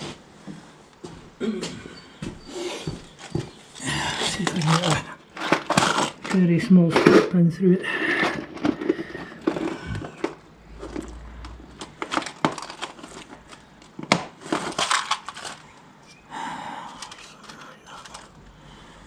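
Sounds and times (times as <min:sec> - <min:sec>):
small metal parts clicking and rattling: 0:08.6 - 0:16.2, 0:16.9 - 0:18.4.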